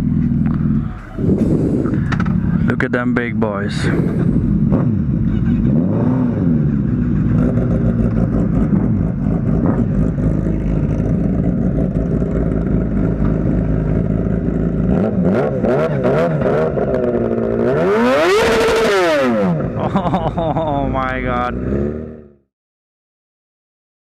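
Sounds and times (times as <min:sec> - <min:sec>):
motorcycle engine idling: 0:00.0 - 0:05.7, 0:06.6 - 0:14.9.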